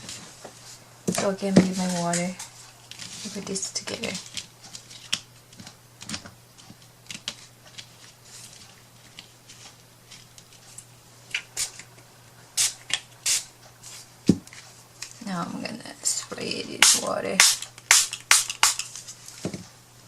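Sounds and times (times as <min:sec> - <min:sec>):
short hissing bursts: 0:12.6 - 0:13.5.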